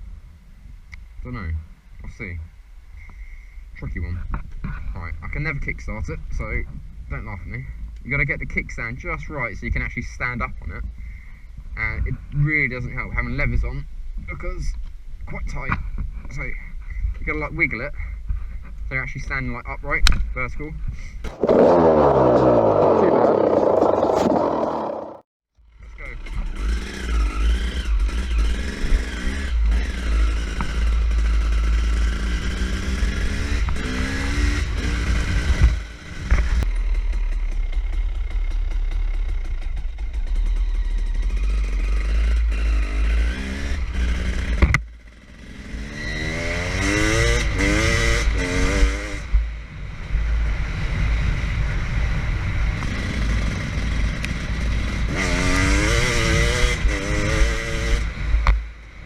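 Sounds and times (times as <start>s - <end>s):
dirt bike engine revving: 21.3s - 25.2s, 54.9s - 58.1s.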